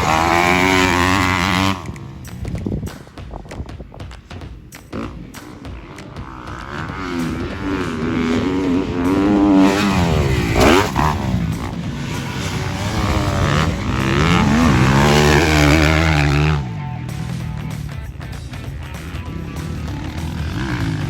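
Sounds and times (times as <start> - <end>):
dirt bike engine revving: 0.0 - 3.2, 4.2 - 21.0.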